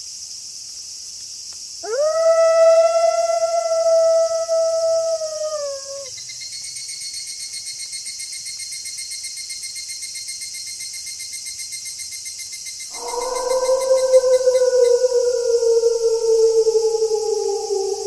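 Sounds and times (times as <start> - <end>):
crickets chirping: 0.0 - 18.0
wolf howling: 1.8 - 6.1, 12.9 - 18.0.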